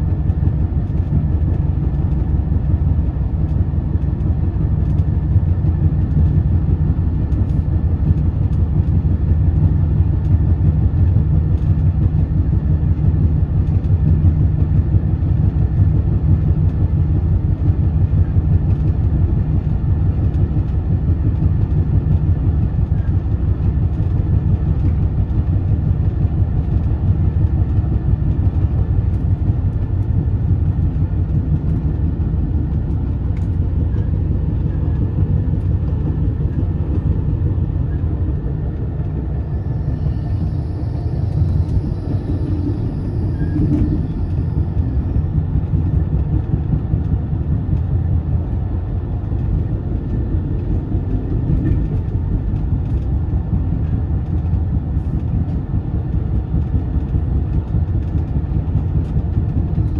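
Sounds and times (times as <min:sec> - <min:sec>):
train rumbling along track: 0:00.0 - 0:59.9.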